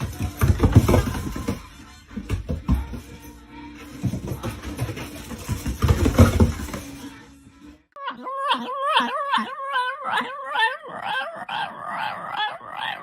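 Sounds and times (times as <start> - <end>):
dog howling and whining: 8.0 - 13.0.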